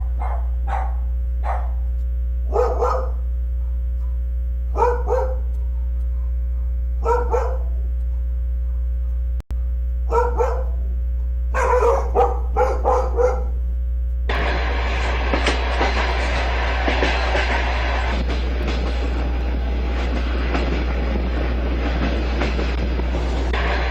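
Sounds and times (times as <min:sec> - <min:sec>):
dog barking: 0:00.0 - 0:09.2, 0:10.1 - 0:13.6
steady low hum: 0:00.0 - 0:23.9
train passing: 0:14.3 - 0:23.9.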